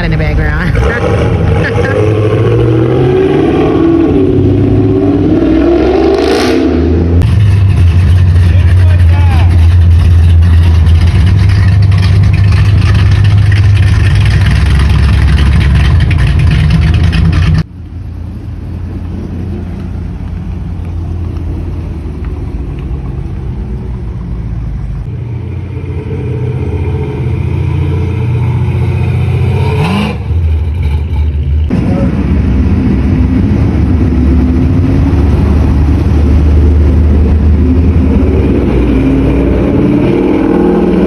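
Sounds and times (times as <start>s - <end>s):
engine revving: 0.0s - 17.7s, 25.0s - 41.0s
car engine with deep exhaust: 0.0s - 41.0s.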